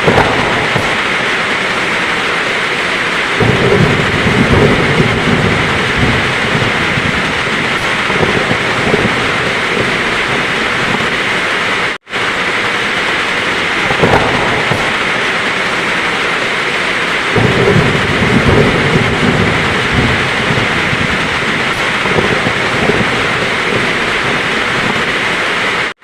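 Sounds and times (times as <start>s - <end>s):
low rumble of thunder: 0.0s - 1.3s, 3.2s - 11.3s, 13.6s - 15.3s, 17.4s - 25.3s
heavy rain pouring: 0.0s - 26.0s.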